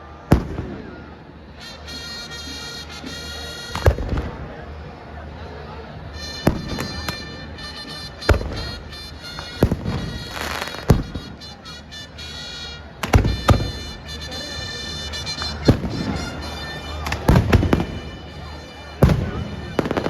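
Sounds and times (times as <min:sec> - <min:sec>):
fireworks bangs: 0:00.3 - 0:00.9, 0:03.7 - 0:04.4, 0:06.4 - 0:11.4, 0:13.0 - 0:18.4, 0:19.0 - 0:20.0.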